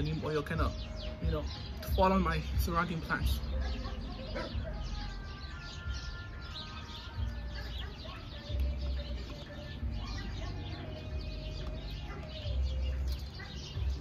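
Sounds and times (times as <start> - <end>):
birds chirping and calling: 0.0 - 14.0.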